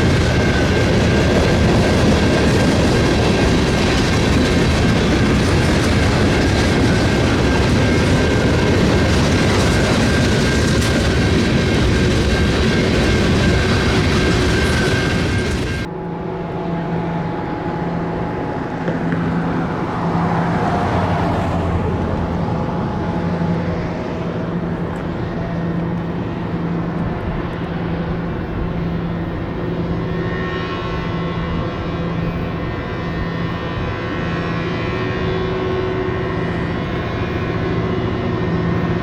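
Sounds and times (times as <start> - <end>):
wheels clattering on rails: 0.0 - 15.9
diesel locomotive engine drone: 0.0 - 39.0.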